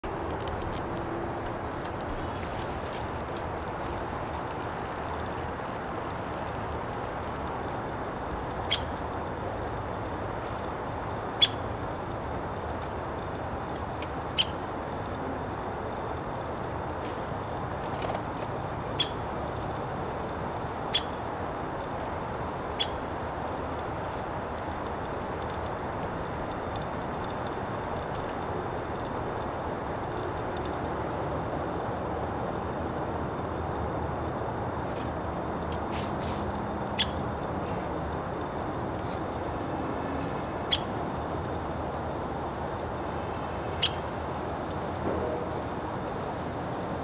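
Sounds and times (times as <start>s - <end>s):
steady background rumble: 0.0s - 47.0s
woodpecker sharp call notes: 8.6s - 9.8s, 11.4s - 11.8s, 14.3s - 15.1s, 19.0s - 19.3s, 20.9s - 21.3s, 22.7s - 23.1s, 37.0s - 37.3s, 40.4s - 41.0s, 43.6s - 47.0s.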